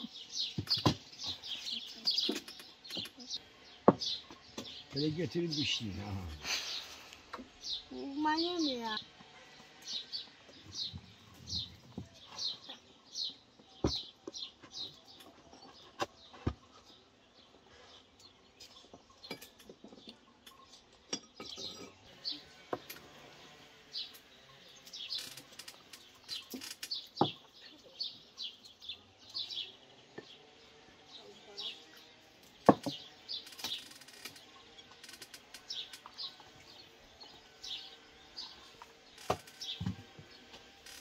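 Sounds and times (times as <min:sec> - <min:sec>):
small birds chirping: 0:00.0 - 0:41.0
sharp knocks on wood: 0:03.8 - 0:04.7, 0:32.6 - 0:33.0.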